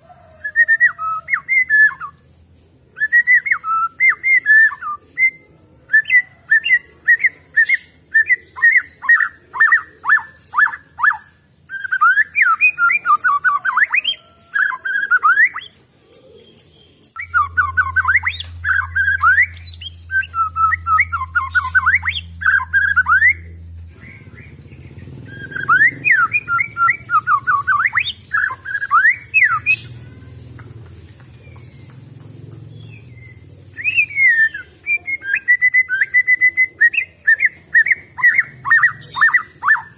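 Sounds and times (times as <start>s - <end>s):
bird singing whistled notes: 3.0s - 29.9s, 32.8s - 39.9s
low steady hum: 16.6s - 33.8s.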